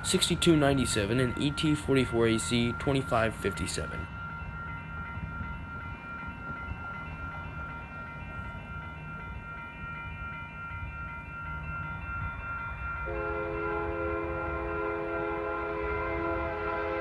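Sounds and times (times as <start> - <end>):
diesel locomotive engine rumble: 0.0 - 17.0.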